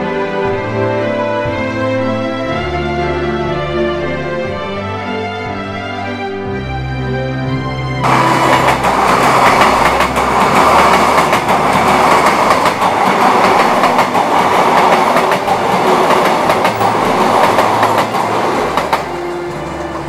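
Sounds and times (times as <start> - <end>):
train wheels rumbling on rails: 8.0 - 20.0
clicks from rail joints: 8.1 - 20.0.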